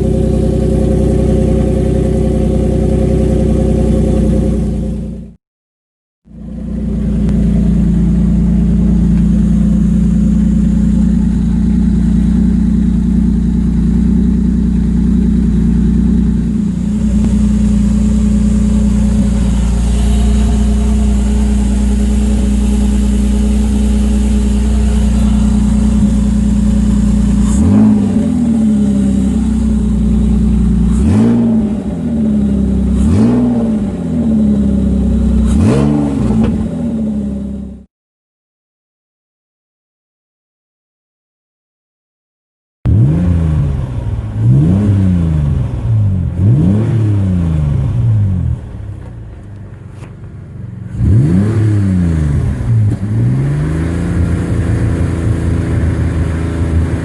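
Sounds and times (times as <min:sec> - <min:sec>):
car engine idling and revving: 0:00.0 - 0:05.4, 0:06.2 - 0:37.9, 0:42.9 - 0:57.0.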